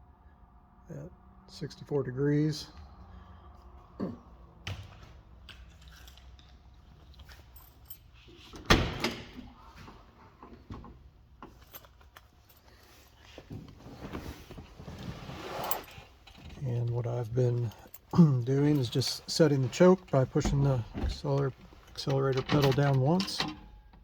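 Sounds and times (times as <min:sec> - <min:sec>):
keys jingling: 0:05.7 - 0:08.7, 0:11.4 - 0:13.4, 0:15.0 - 0:23.8
handling rustles and clicks: 0:09.3 - 0:24.0.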